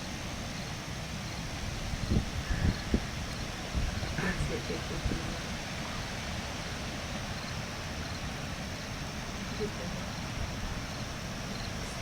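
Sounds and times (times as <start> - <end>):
rain: 0.0 - 12.0
wind: 0.0 - 12.0.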